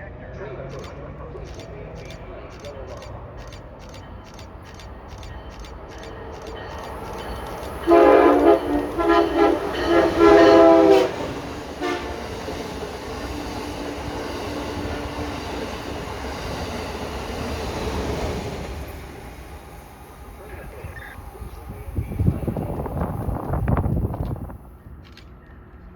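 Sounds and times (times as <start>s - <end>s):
train wheels rumbling on rails: 0.8s - 25.9s
train horn blasts: 7.8s - 12.5s.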